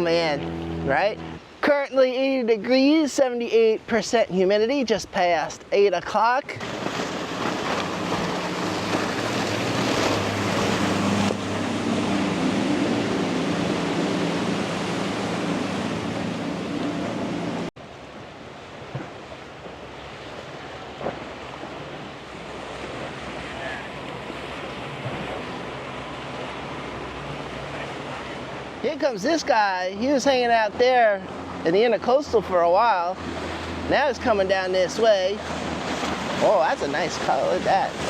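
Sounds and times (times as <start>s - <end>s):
boat engine humming: 0.0s - 38.0s
surf washing: 0.0s - 38.0s.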